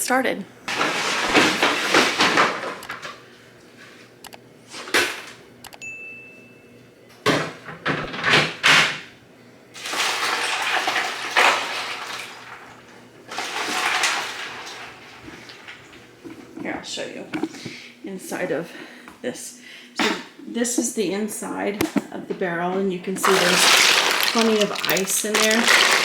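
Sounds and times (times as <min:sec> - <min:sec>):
plastic tubs knocking and scraping: 0:00.7 - 0:03.0, 0:23.2 - 0:26.0
ice water swishing: 0:23.2 - 0:26.0.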